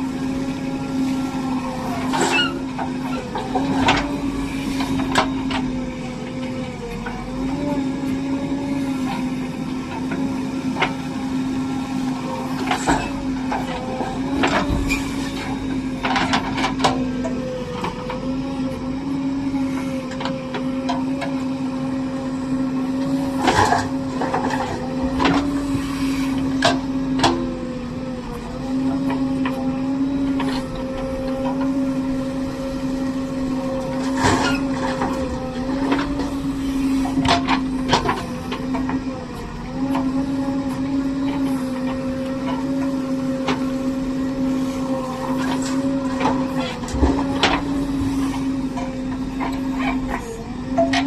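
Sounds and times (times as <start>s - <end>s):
backhoe engine humming: 0.0s - 51.0s.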